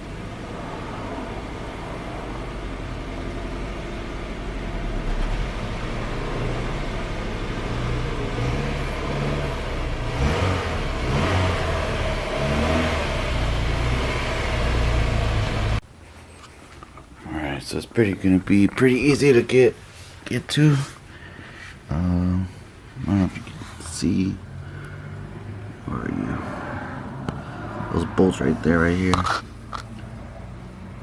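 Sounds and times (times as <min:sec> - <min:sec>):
car engine running: 0:00.0 - 0:15.8.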